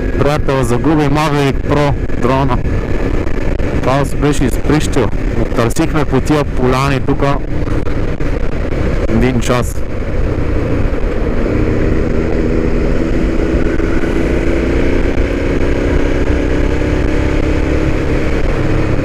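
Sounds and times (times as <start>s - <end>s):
motorcycle engine running: 0.0s - 19.0s
wind rumble on microphone: 0.0s - 19.0s.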